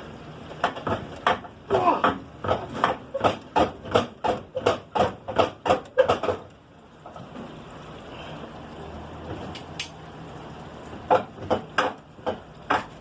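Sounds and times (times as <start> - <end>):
hammering on metal part: 0.6 - 6.4.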